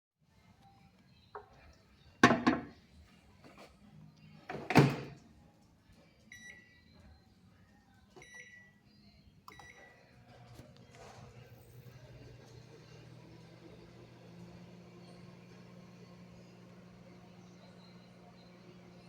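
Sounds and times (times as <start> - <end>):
microwave door clunks: 4.5 - 5.2
high keypad beeps: 8.2 - 8.7
microwave oven humming: 9.5 - 19.0.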